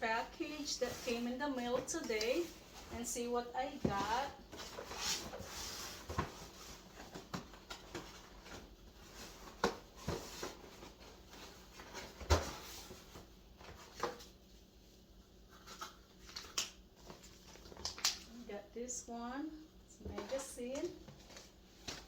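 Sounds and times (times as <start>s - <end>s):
packaging rustling: 15.5s - 18.3s.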